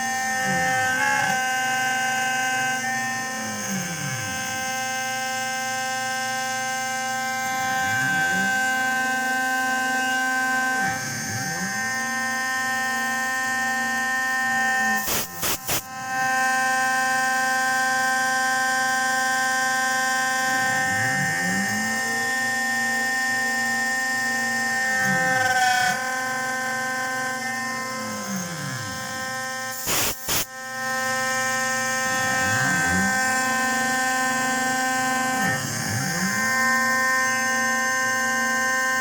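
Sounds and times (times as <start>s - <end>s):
milling machine motor whine: 0.0s - 39.0s
stepper motors whining in pitch: 0.0s - 39.0s.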